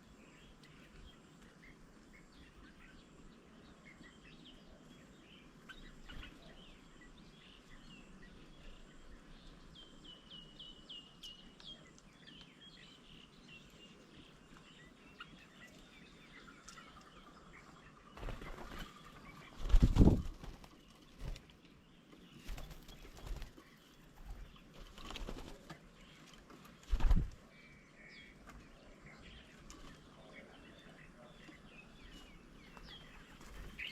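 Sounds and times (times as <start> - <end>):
small birds chirping: 0.0 - 33.9
wings flapping: 18.2 - 21.6, 22.4 - 25.9, 26.5 - 27.4.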